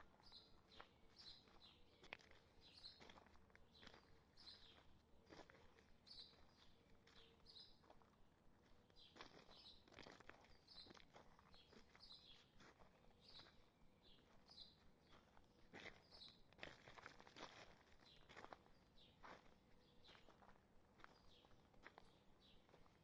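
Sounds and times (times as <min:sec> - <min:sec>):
bird chirping: 0:00.0 - 0:03.1, 0:03.7 - 0:04.9
faint footsteps on trail: 0:00.0 - 0:23.0.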